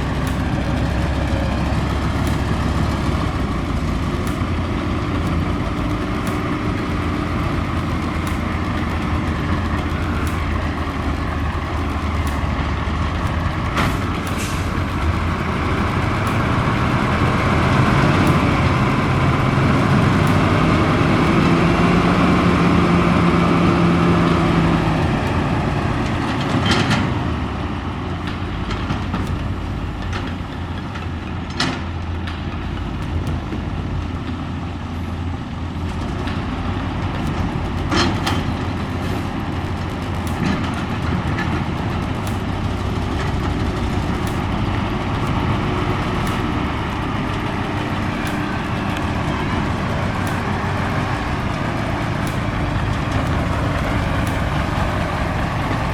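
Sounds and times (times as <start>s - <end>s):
sharp knocks: 0.0s - 21.8s, 37.2s - 55.9s
pitched tone: 0.0s - 25.6s, 37.2s - 55.9s
diesel engine rumbling: 0.0s - 55.9s.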